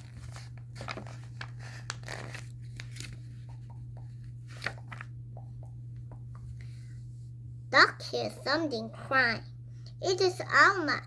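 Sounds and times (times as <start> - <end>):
paper rustling: 0.0 - 5.2
steady low hum: 0.0 - 11.0.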